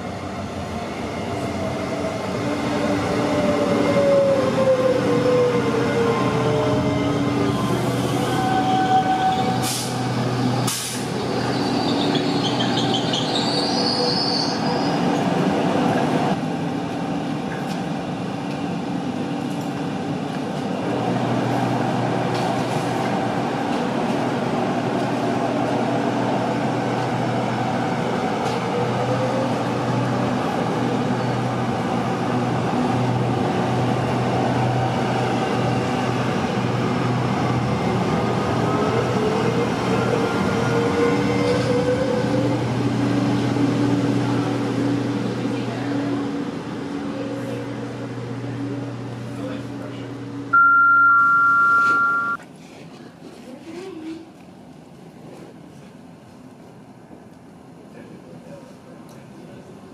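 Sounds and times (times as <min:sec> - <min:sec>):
high wheel squeal: 0:11.2 - 0:15.0.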